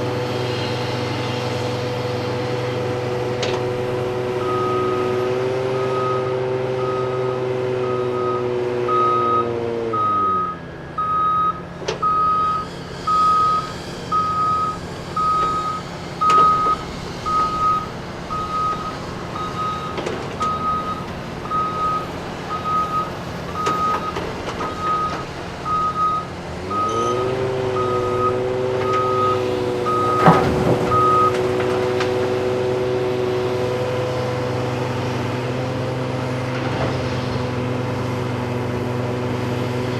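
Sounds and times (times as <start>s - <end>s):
diesel engine revving and idling: 0.0s - 39.9s
truck backup alarm beeping: 1.2s - 33.0s.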